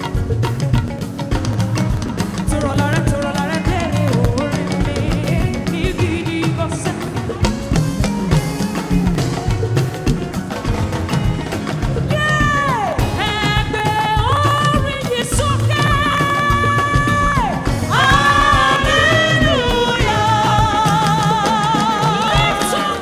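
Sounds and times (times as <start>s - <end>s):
gospel band playing upbeat groove: 0.0s - 23.0s
long falling vocal glide: 12.0s - 23.0s.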